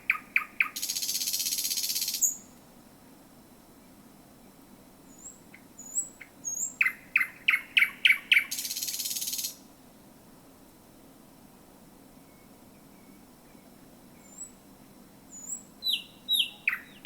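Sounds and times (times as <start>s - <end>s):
bird singing whistles and rattle: 15.3s - 17.0s.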